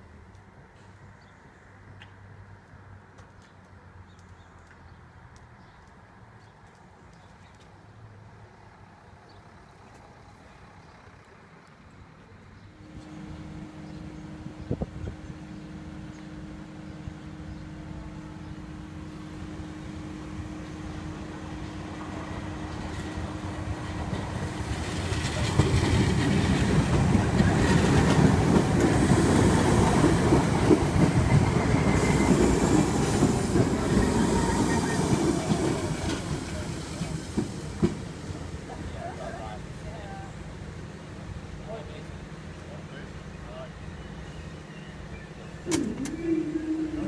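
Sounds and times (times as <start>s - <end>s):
electric train passing: 12.7s - 47.0s.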